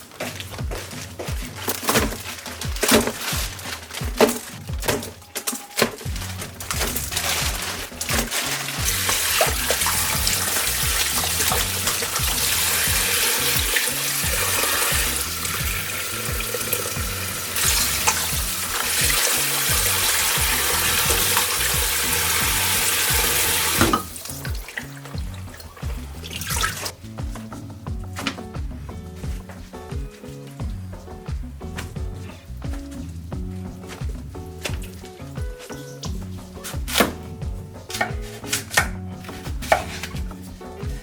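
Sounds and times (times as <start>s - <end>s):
background music with bass: 0.0s - 41.0s
tap water running into sink: 6.0s - 26.9s.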